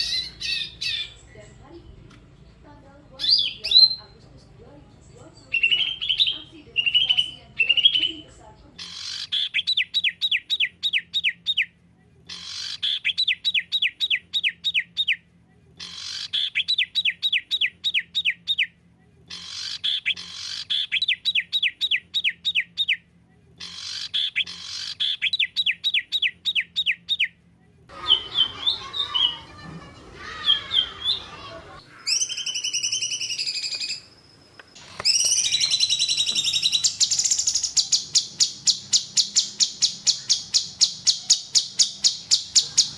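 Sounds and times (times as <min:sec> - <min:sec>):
fast high bird trill: 0:00.0 - 0:01.4, 0:03.2 - 0:04.2, 0:05.4 - 0:09.4, 0:27.9 - 0:34.1, 0:35.0 - 0:42.9
bird chirps and calls: 0:00.0 - 0:11.7, 0:12.3 - 0:15.2, 0:15.8 - 0:18.7, 0:19.3 - 0:23.0, 0:23.6 - 0:27.3, 0:27.9 - 0:34.1, 0:34.8 - 0:42.9.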